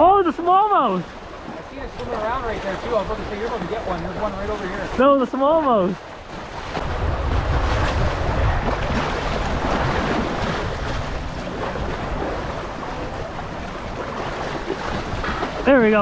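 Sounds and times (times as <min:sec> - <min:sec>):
waves washing against rocks: 0:00.0 - 0:16.0
wind buffeting microphone: 0:05.9 - 0:16.0.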